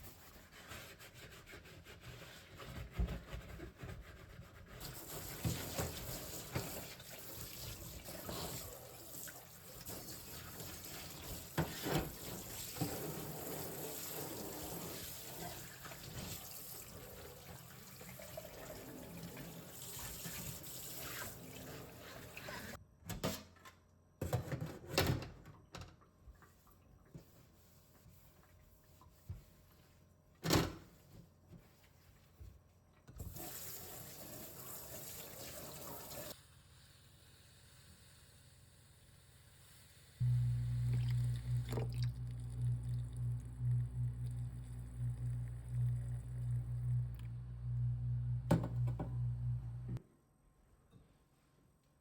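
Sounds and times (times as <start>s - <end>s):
tap running into sink: 48.5s - 49.2s.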